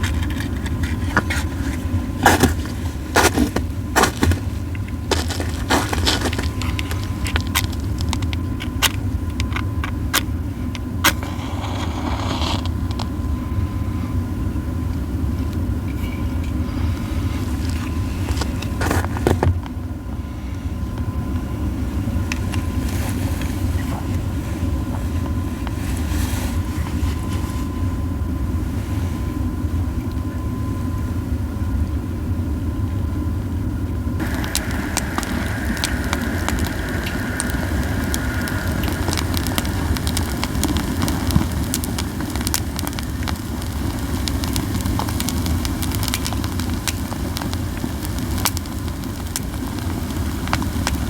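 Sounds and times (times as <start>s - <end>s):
pine cones crackling in fire: 0.0s - 20.6s, 34.2s - 51.0s
steady low rumble: 0.0s - 31.6s, 32.2s - 51.0s.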